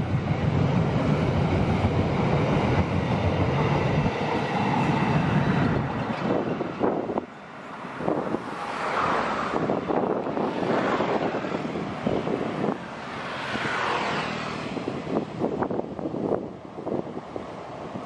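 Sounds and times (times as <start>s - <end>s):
train wheels rumbling: 0.0s - 8.6s
wind on microphone: 0.0s - 18.0s.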